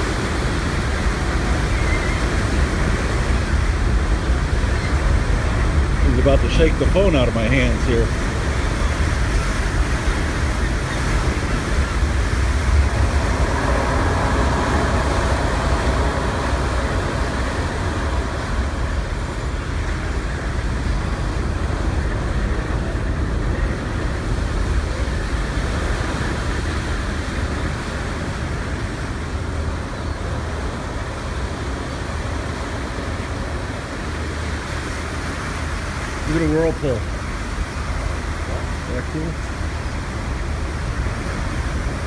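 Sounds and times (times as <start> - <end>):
propeller wash churning: 0.0 - 28.3
steam engines deep rumble: 0.0 - 42.0.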